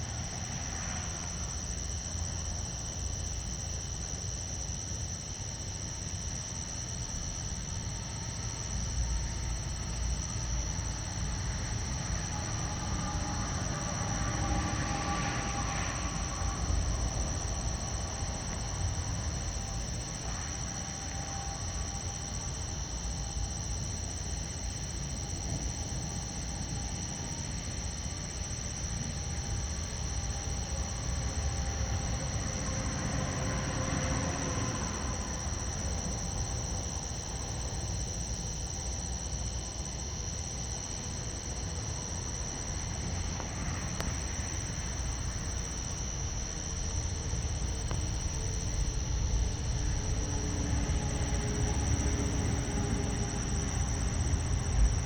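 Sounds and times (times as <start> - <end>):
high-pitched insect drone: 0.0 - 55.0
low rumble: 44.6 - 55.0.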